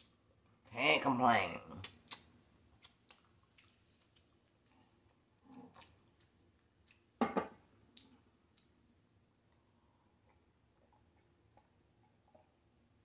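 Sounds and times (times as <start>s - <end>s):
chewing with mouth clicks: 1.8s - 7.1s.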